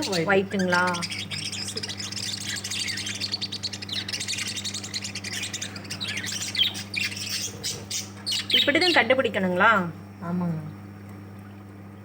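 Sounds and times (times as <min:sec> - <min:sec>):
lovebirds chirping: 0:00.0 - 0:09.4
steady low hum: 0:00.0 - 0:12.0.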